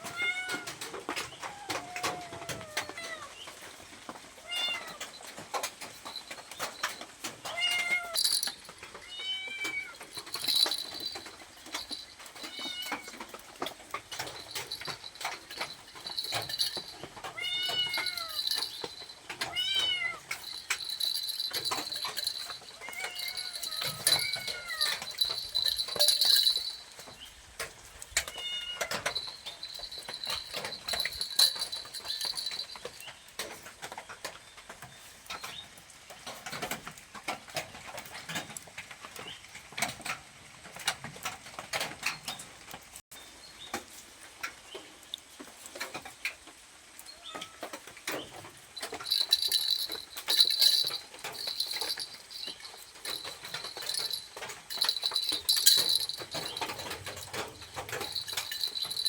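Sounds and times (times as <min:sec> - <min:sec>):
small bell jingling: 0:04.4 - 0:34.2, 0:48.2 - 0:59.0.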